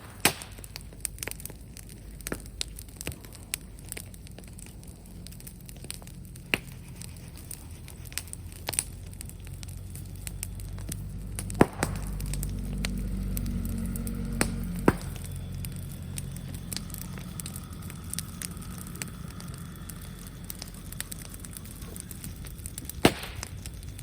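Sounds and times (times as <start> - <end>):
sharp loud pops: 0.0 - 1.5, 10.8 - 13.0, 22.7 - 23.7
bonfire crackling: 0.0 - 24.0.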